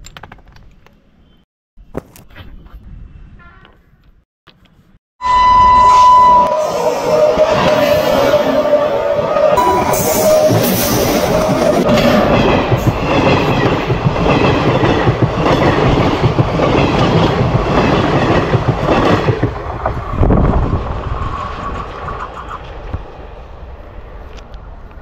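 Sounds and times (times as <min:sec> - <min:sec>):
train coaches rumbling past: 0:05.2 - 0:25.0.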